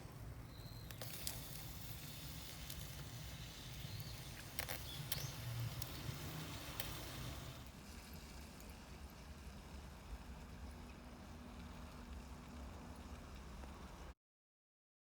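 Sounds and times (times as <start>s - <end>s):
clicks and taps at grill: 0.8s - 7.2s.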